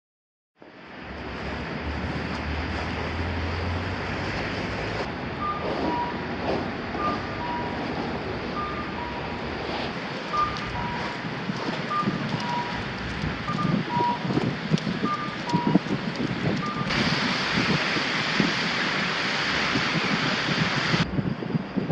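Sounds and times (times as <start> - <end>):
blizzard wind blowing hard: 0.6 - 21.9
two-tone electronic beep: 5.4 - 6.3, 7.0 - 7.8, 8.5 - 9.4, 10.3 - 11.2, 11.8 - 12.8, 13.4 - 14.3, 15.0 - 15.8, 16.6 - 17.0.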